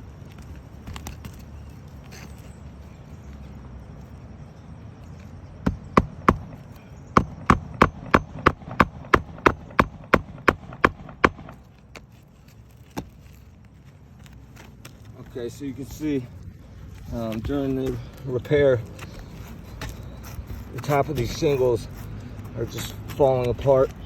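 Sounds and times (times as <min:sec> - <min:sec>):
hammer striking a shingled roof: 0:05.6 - 0:11.6.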